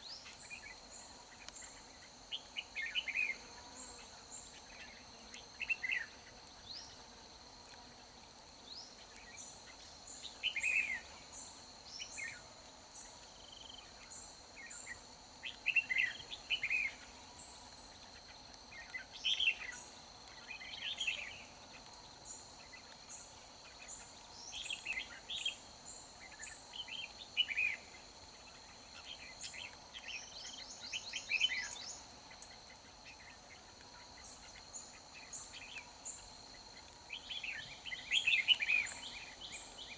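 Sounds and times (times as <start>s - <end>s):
high insect drone: 0.0s - 39.9s
birds singing bright phrases: 1.5s - 6.9s, 10.1s - 12.4s, 13.4s - 18.0s, 29.0s - 32.0s, 37.1s - 39.9s.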